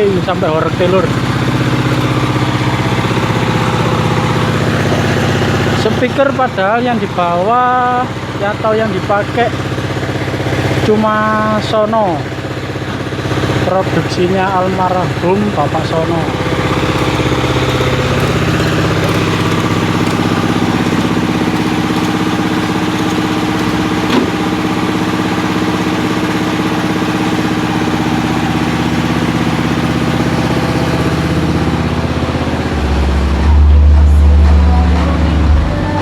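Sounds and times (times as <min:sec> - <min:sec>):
deep bass tone: 0:14.4 - 0:26.0, 0:27.8 - 0:36.0
speaker stack playing low chords: 0:27.7 - 0:36.0.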